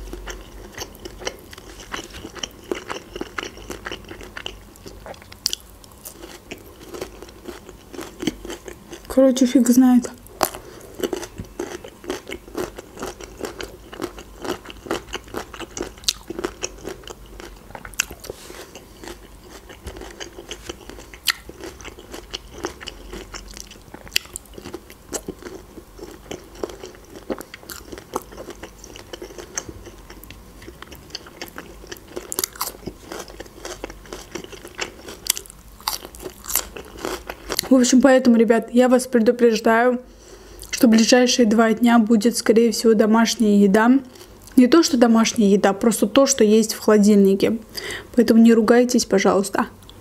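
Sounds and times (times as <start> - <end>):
person chewing: 0.0 - 9.1, 10.0 - 37.7.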